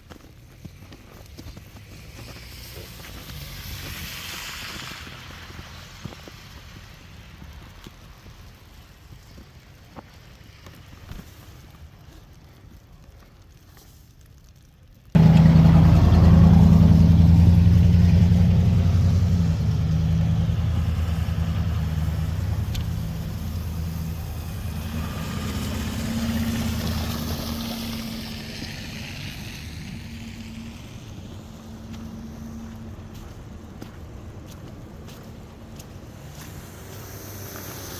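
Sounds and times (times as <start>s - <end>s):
heavy vehicle engine: 15.2s - 37.9s.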